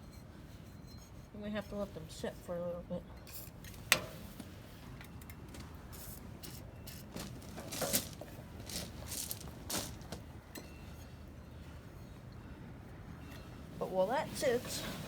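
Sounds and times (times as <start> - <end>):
small objects clattering: 6.9 - 10.2.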